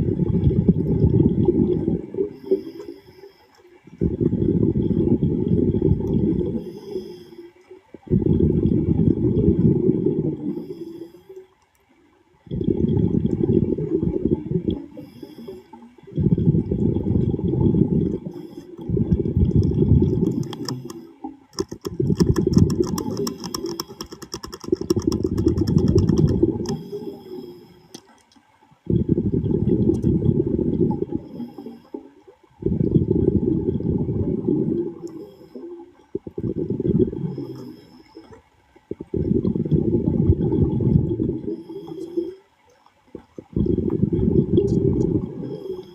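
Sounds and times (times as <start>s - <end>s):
breath bubbling underwater: 0.0s - 2.7s, 4.0s - 7.1s, 8.0s - 11.0s, 12.4s - 27.6s, 28.9s - 38.2s, 38.8s - 42.4s, 43.2s - 45.9s
fine clicks and ticks: 18.6s - 28.5s.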